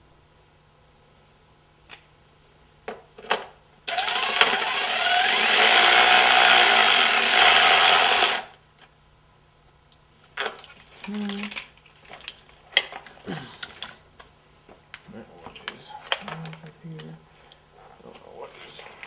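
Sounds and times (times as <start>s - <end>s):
impact driver running: 3.9s - 8.6s.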